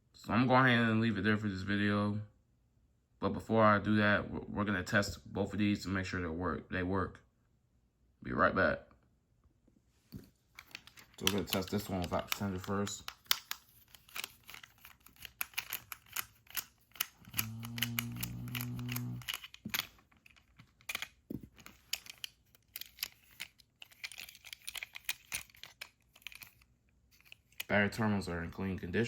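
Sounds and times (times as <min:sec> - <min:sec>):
low steady hum: 0:00.0 - 0:29.0
plastic toy clicks and rattles: 0:10.6 - 0:27.7.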